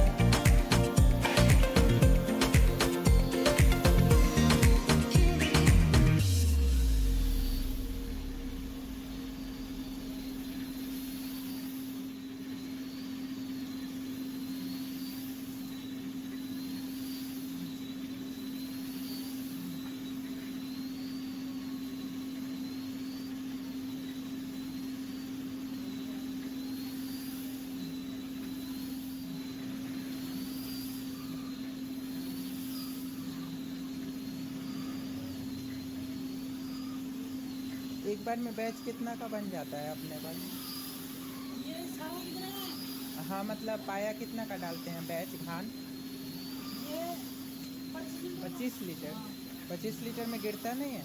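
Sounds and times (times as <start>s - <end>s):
machine motor hum: 0.0s - 11.5s.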